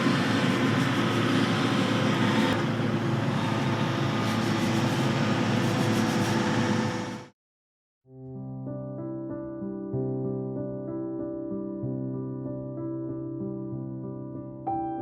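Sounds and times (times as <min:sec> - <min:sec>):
construction machinery engine running: 0:00.0 - 0:07.3.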